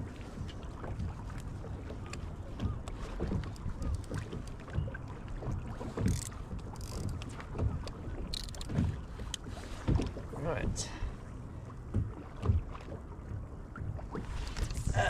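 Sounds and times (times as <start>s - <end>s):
water splashing: 0.8s - 11.0s
water knocking on kayak hull: 11.9s - 12.9s.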